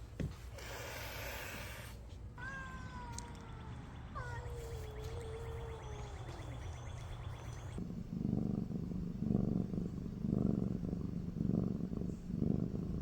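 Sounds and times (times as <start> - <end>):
cat meowing: 2.4 - 6.5
cat purring: 4.2 - 13.0.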